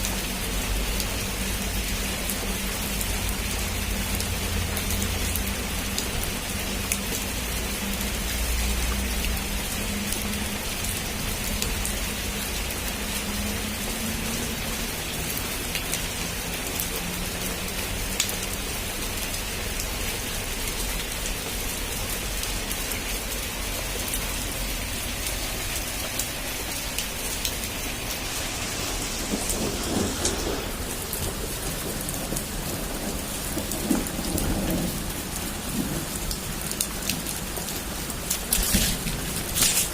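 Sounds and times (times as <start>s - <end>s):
heavy rain on a rooftop: 0.0s - 39.9s
thunder rumbling: 26.7s - 39.9s.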